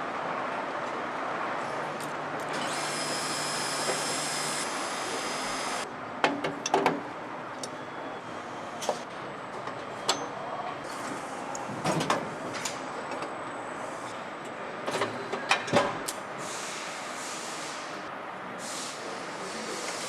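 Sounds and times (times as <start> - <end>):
machinery hum: 2.5 - 5.8
air hiss: 16.4 - 18.0, 18.6 - 20.0.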